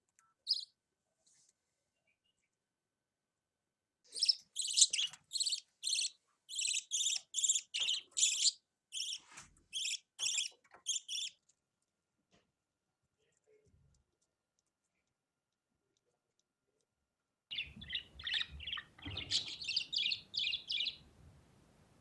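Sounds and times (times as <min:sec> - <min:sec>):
budgerigar chirping: 0:00.5 - 0:00.7, 0:04.2 - 0:11.4, 0:17.5 - 0:21.0.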